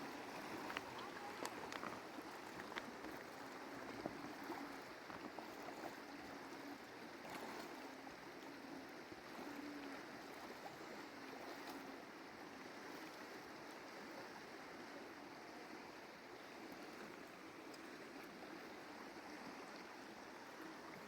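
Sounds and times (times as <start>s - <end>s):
mountain stream flowing: 0.0s - 21.0s
faint clicks: 0.6s - 3.3s.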